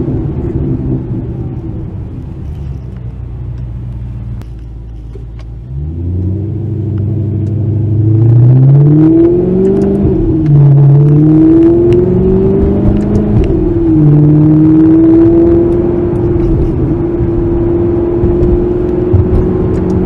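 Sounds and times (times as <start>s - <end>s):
sports car engine revving: 5.6s - 20.0s.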